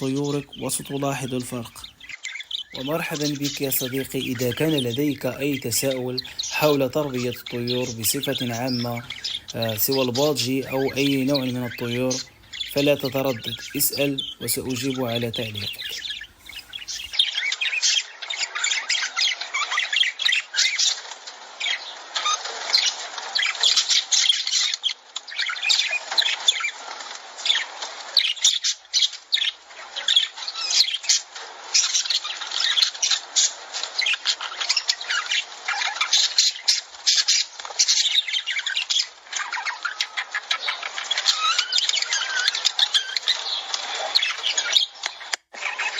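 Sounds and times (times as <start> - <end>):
lovebirds chattering and screeching: 0.0 - 17.8, 32.0 - 45.9.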